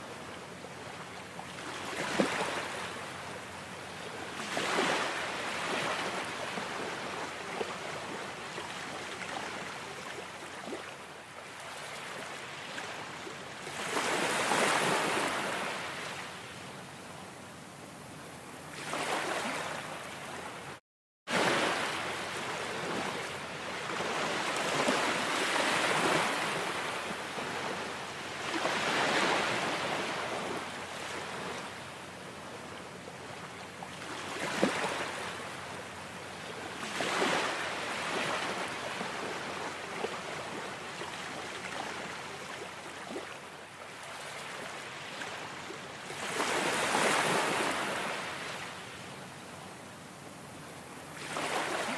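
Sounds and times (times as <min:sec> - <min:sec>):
ocean waves washing in: 0:18.7 - 0:33.2.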